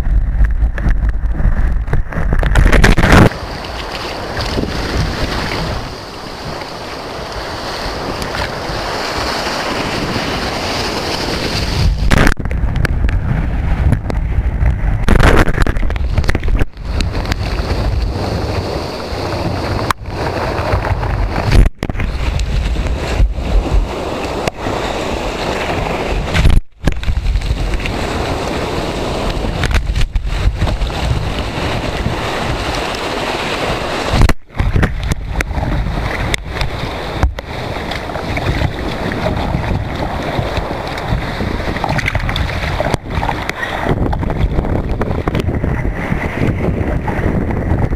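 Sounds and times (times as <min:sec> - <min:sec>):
surf breaking: 0:00.0 - 0:47.9
water rushing: 0:00.0 - 0:47.9
wind buffeting microphone: 0:00.0 - 0:47.9.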